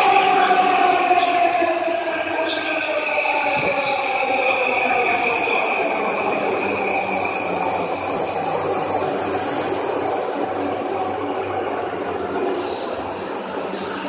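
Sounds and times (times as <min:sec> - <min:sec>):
train running noise: 0:00.0 - 0:14.0
high wheel squeal: 0:04.6 - 0:11.0, 0:12.6 - 0:14.0.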